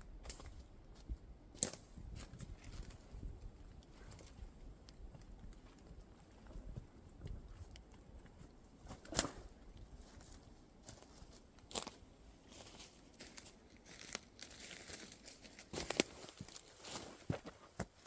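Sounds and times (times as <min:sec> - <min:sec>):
twigs snapping: 0:08.9 - 0:09.9, 0:15.8 - 0:16.6
footsteps crunching dry leaves: 0:10.8 - 0:17.4.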